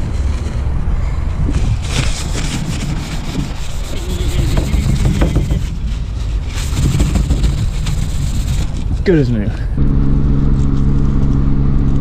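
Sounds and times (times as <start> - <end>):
low rumble: 0.0 - 12.0
cloth wiping liquid: 2.3 - 9.0.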